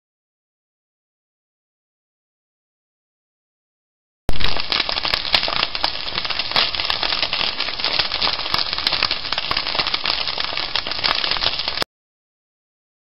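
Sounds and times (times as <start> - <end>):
cakes sizzling in oil: 4.3 - 11.9.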